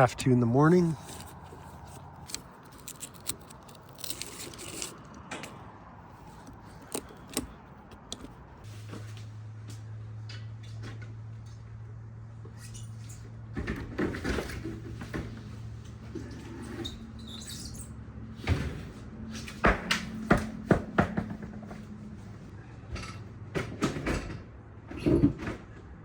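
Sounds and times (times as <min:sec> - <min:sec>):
hands and tools on metal: 0:00.0 - 0:08.7.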